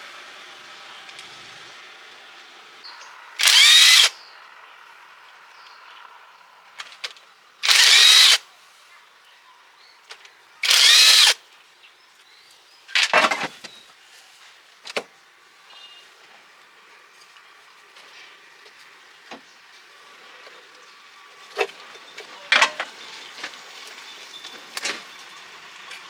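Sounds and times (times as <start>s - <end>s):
electric power tool motor: 3.3s - 4.2s, 7.6s - 8.4s, 10.6s - 11.4s.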